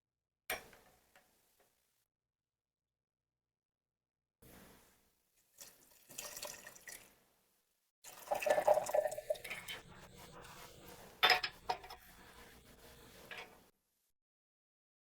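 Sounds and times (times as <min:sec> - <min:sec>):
water pouring into teapot: 0:05.6 - 0:07.1, 0:08.1 - 0:10.6.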